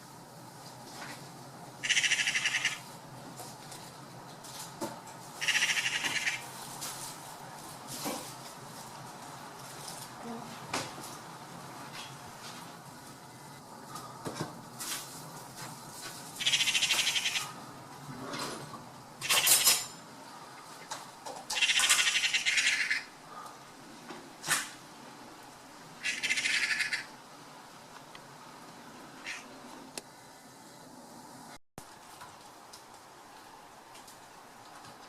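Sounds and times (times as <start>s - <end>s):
high-pitched pulsed animal calls: 1.8s - 2.8s, 5.4s - 6.4s, 16.4s - 17.6s, 26.0s - 27.1s.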